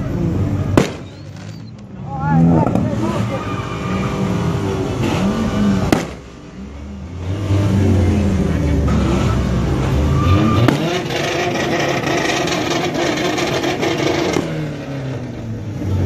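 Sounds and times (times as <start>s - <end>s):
car engines revving: 0.0s - 16.0s
fireworks bang: 0.8s - 1.5s, 5.9s - 6.2s
fireworks crackling: 0.8s - 1.6s.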